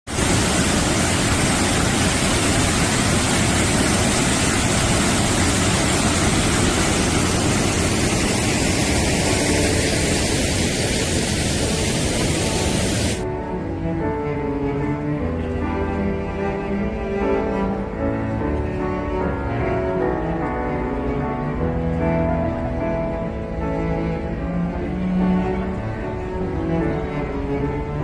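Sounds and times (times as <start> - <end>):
stream water rushing: 0.1 - 13.2.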